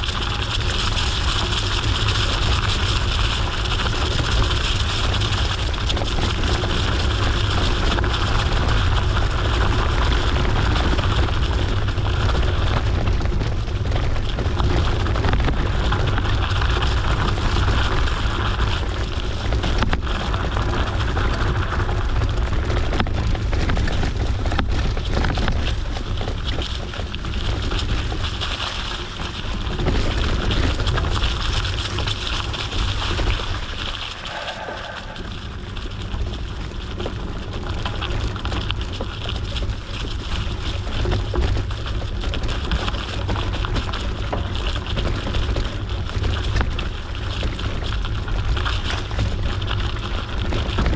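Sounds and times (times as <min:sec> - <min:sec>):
bike tyres rolling on dirt road: 0:00.0 - 0:50.9
wind buffeting microphone: 0:29.4 - 0:37.6.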